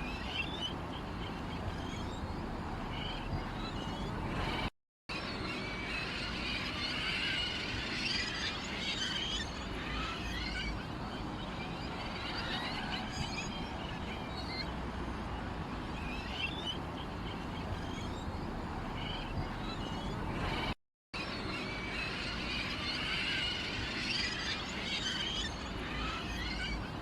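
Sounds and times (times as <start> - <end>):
small birds chirping: 0.0 - 4.7, 5.3 - 20.7
steady background noise: 0.0 - 27.0.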